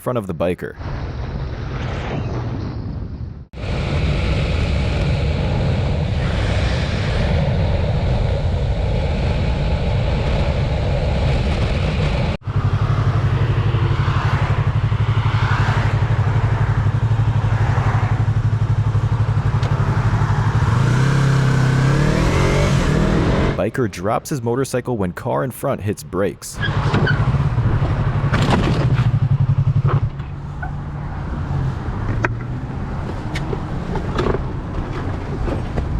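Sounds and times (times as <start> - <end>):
road and wind noise: 0.6 - 35.9
motorcycle engine running: 8.2 - 23.6, 26.6 - 31.0.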